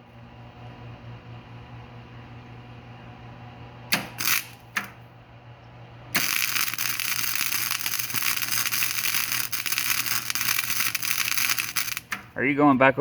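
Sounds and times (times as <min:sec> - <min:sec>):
crackling welding arc: 0:03.9 - 0:05.0, 0:06.1 - 0:12.4
welder hum: 0:03.9 - 0:05.0, 0:06.1 - 0:12.6
welding arc bursts: 0:04.0 - 0:04.9, 0:06.2 - 0:12.4.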